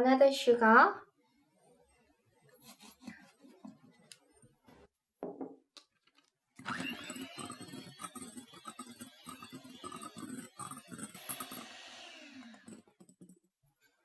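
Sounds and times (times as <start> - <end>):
electric whisk whirring: 6.6 - 13.4.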